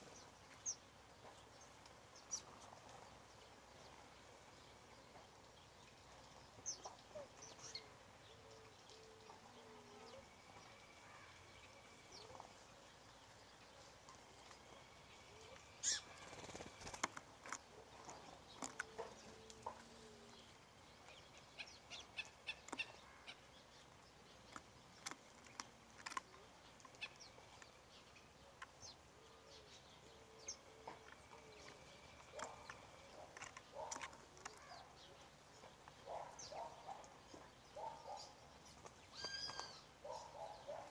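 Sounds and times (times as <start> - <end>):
birds chirping and clicking: 0.1 - 40.9
thin drawn-out bird whistles: 15.8 - 16.3.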